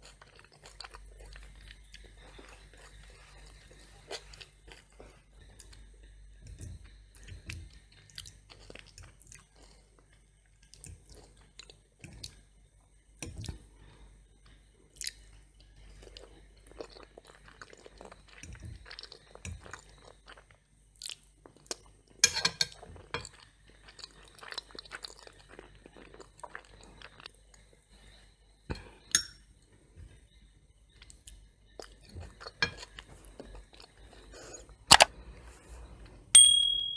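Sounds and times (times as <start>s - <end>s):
chewing with mouth clicks: 0.0s - 12.4s, 14.4s - 21.9s, 22.7s - 28.8s, 30.1s - 35.3s
crunching toast: 15.9s - 27.7s.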